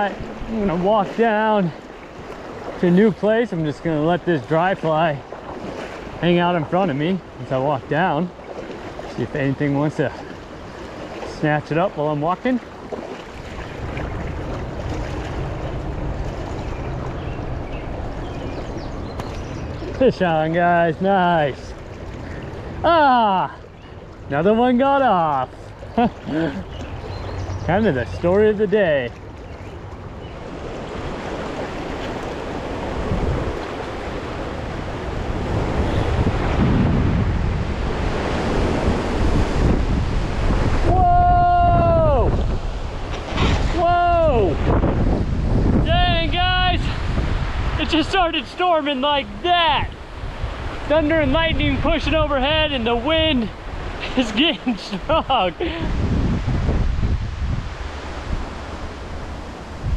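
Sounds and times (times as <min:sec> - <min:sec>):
river water rushing: 0:00.0 - 0:59.9
wind rumble on microphone: 0:12.5 - 0:20.5, 0:26.2 - 0:48.3, 0:49.8 - 0:54.2, 0:55.5 - 0:59.9.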